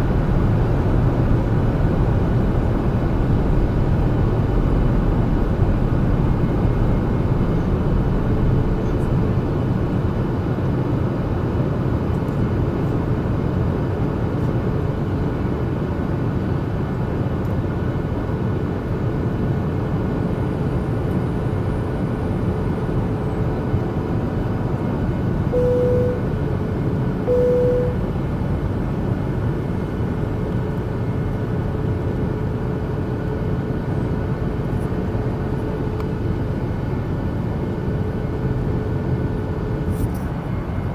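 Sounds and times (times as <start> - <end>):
engine and airflow drone: 0.0 - 40.9
faint steady hum: 25.5 - 29.0
short beeps: 25.6 - 26.3, 27.3 - 28.0.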